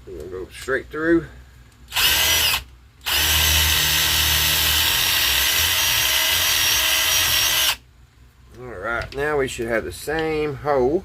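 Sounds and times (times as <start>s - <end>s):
electric drill boring: 1.9s - 7.8s.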